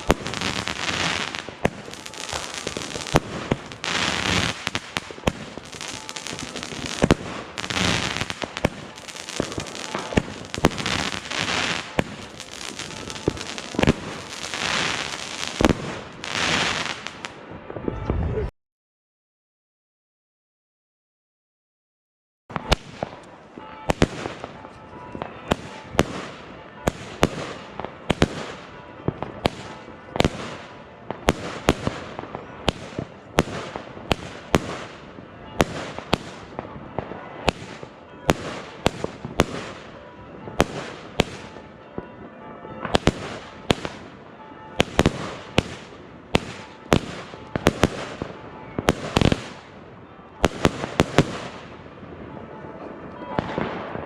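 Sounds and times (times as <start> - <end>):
firework crackle: 0.0 - 17.4, 25.5 - 40.0, 44.8 - 49.8, 50.4 - 51.9.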